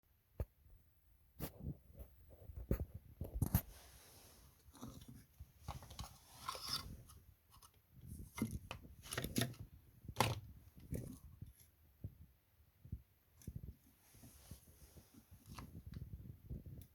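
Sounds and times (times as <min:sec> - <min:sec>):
short rustling scrapes: 0:03.5 - 0:08.6, 0:14.0 - 0:15.9.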